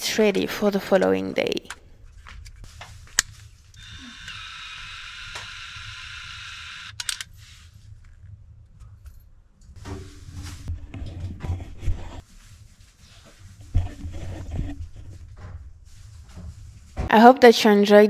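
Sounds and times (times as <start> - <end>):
camera plastic clicks and rattles: 3.1 - 7.3.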